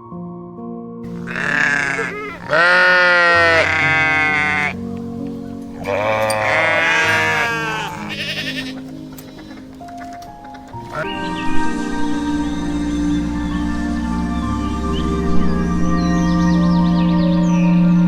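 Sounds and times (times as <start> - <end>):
soft piano music: 0.0 - 18.0
sheep bleating: 1.1 - 9.7, 10.8 - 11.1.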